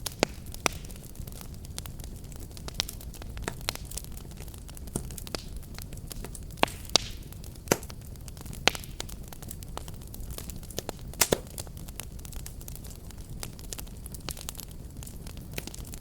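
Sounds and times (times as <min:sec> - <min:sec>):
fireplace fire crackling: 0:00.0 - 0:16.0.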